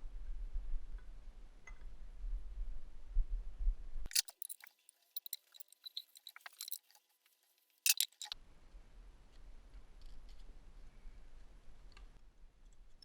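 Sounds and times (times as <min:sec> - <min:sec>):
quick light clicks and clinks: 0:04.1 - 0:07.0, 0:07.9 - 0:08.4.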